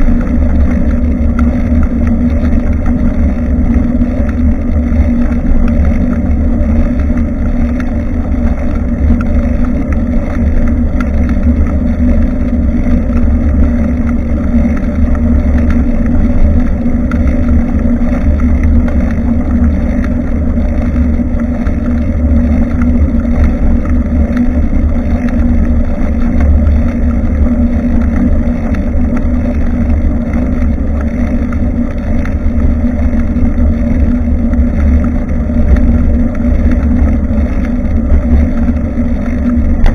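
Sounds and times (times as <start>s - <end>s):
road vibration: 0.0s - 39.9s
wind rumble: 0.0s - 39.9s.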